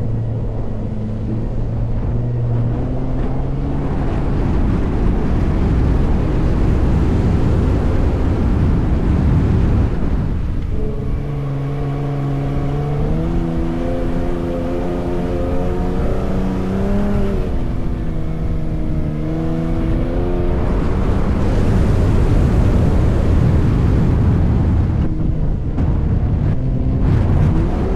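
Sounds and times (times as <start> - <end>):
truck engine droning: 0.0 - 27.9
tyre and wind noise: 0.0 - 27.9.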